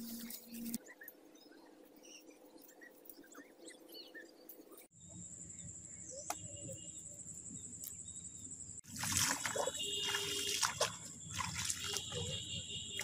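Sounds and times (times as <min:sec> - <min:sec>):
faint bird chirps: 0:00.0 - 0:08.5.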